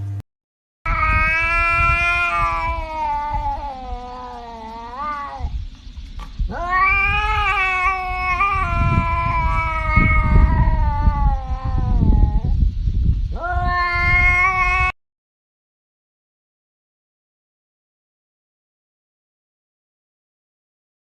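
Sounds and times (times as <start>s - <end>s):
cat yowling: 0.9s - 5.6s, 6.4s - 12.6s, 13.3s - 15.0s
low rumbling noise: 0.9s - 14.9s.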